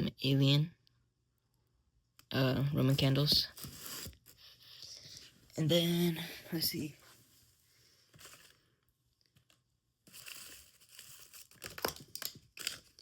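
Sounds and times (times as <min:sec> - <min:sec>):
packaging crinkling and rustling: 0:08.1 - 0:13.0.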